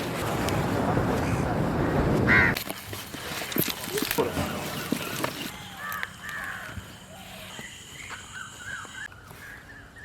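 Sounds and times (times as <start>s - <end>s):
birds calling: 3.6s - 10.0s.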